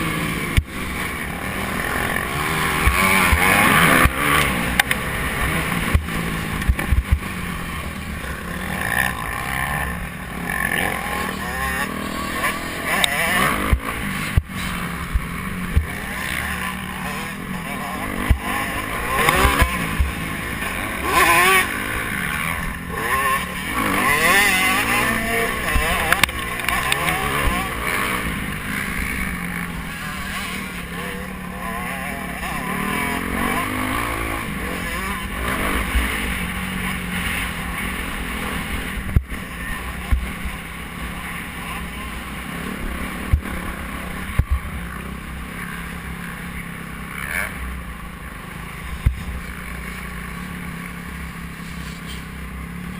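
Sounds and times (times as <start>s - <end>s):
motocross bike engines revving: 0.0s - 52.9s
steady rushing noise: 0.0s - 52.9s.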